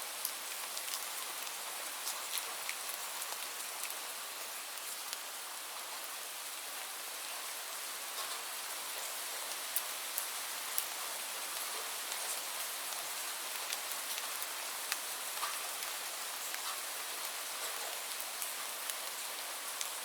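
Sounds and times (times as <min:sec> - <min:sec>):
steady rainfall: 0:00.0 - 0:20.0.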